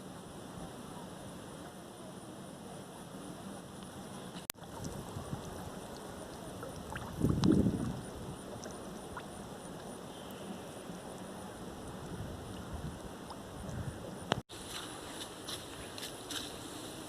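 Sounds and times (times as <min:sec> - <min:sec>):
wind: 0:00.0 - 0:17.0
flowing water: 0:02.7 - 0:14.4.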